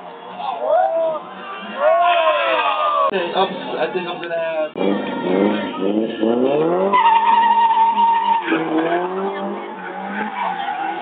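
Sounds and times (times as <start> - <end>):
car engine revving: 3.2 - 11.0
tire squeal: 4.8 - 11.0.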